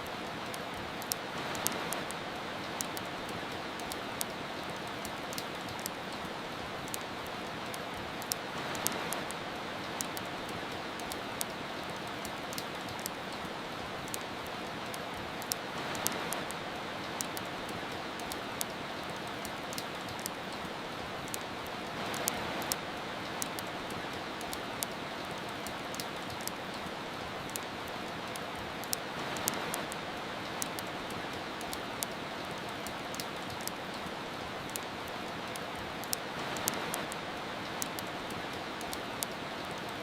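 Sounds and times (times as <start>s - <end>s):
rain hiss: 0.0s - 40.0s
wood fire crackling: 0.0s - 40.0s.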